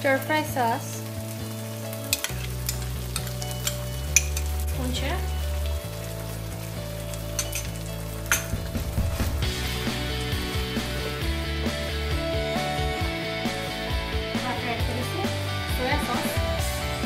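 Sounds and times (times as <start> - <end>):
food sizzling in oil: 0.0 - 17.0
sauce pouring: 1.0 - 12.8.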